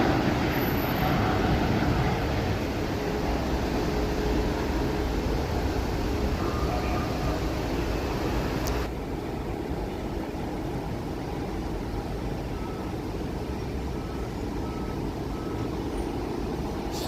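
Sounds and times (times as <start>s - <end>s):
low engine rumble: 0.0s - 17.0s
back-up alarm beeping: 12.4s - 15.8s.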